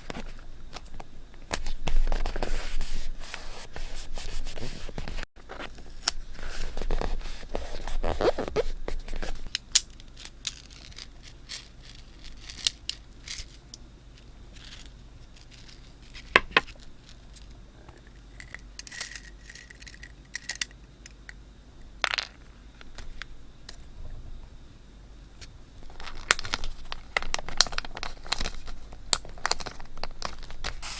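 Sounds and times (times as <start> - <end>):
paper rustling and scraping: 1.5 - 9.5, 25.8 - 30.9.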